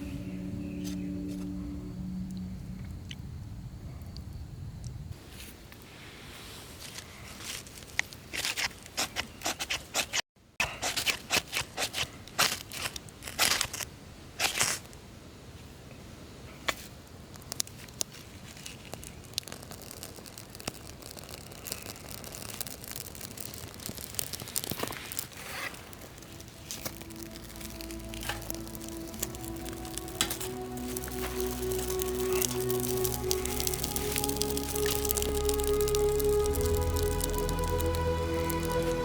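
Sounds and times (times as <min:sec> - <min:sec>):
rustling and crinkling handling: 0:16.8 - 0:39.0.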